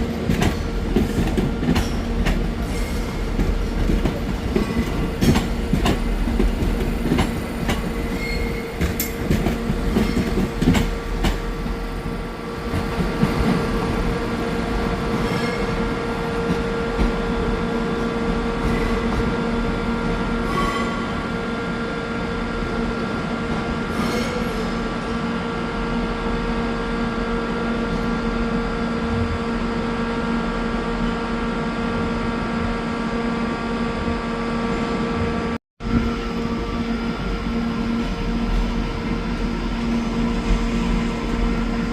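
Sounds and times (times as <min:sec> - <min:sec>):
steady train hum: 0:00.0 - 0:41.9
train wheels clicking over rail joints: 0:00.2 - 0:11.6
high wheel squeals: 0:08.1 - 0:08.8.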